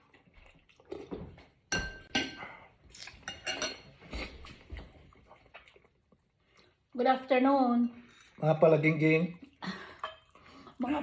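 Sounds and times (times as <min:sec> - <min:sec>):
dishes and utensils clinking: 0:01.7 - 0:04.6.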